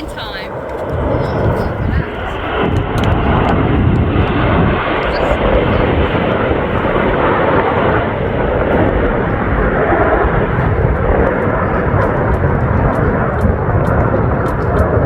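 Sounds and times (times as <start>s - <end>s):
jet aircraft flying over: 0.0s - 15.0s.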